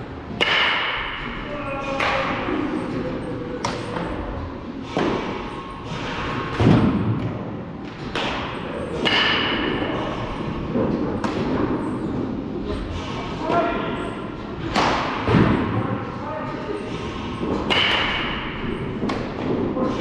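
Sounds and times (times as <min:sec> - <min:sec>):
baseballs striking hard: 0:00.3 - 0:02.6, 0:03.6 - 0:04.1, 0:06.2 - 0:12.1, 0:14.6 - 0:15.8, 0:17.4 - 0:19.8.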